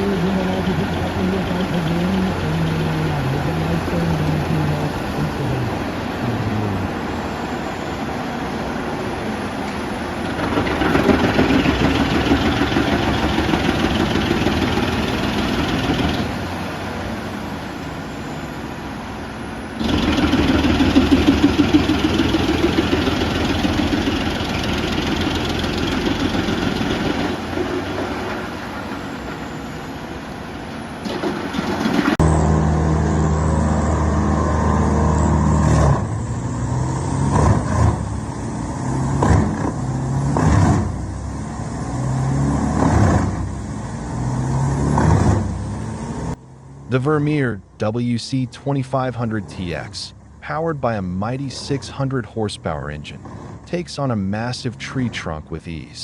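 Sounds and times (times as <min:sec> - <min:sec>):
steady engine hum: 0:00.0 - 0:56.0
wood chipper grinding: 0:10.2 - 0:16.4, 0:19.8 - 0:29.4, 0:31.0 - 0:32.8.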